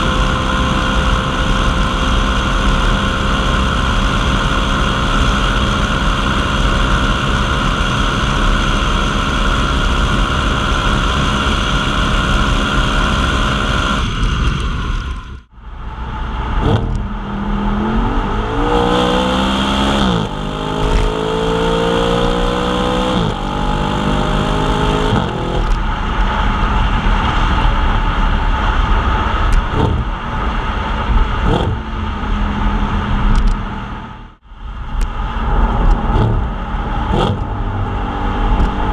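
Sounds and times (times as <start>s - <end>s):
car engine accelerating through gears: 15.9s - 27.9s, 28.6s - 34.4s, 35.4s - 38.9s.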